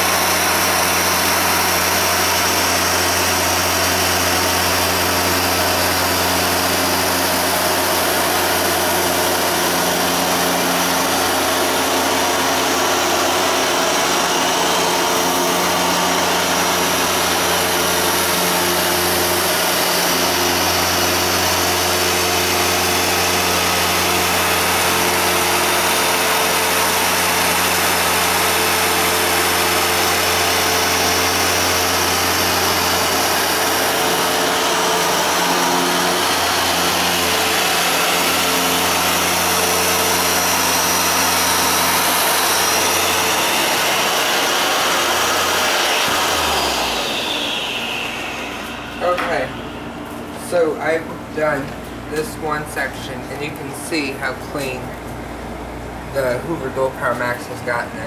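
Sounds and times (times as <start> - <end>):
carpet washer motor humming: 0.0 - 50.4
suction rushing: 29.1 - 51.5.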